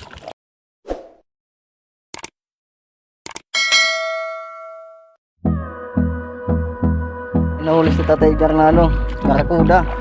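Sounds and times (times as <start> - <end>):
bell-like ding: 3.6 - 5.2.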